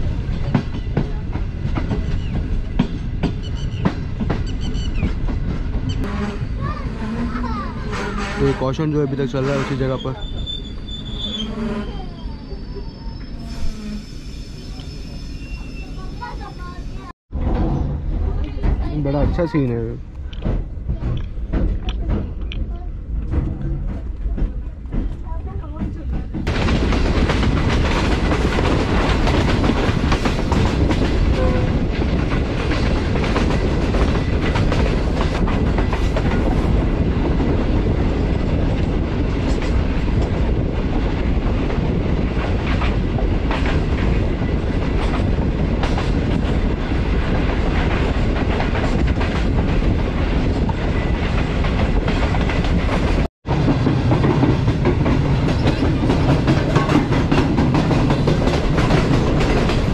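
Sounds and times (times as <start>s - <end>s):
train coaches rumbling: 0.0s - 59.9s
wheels clacking over rail joints: 17.3s - 59.9s.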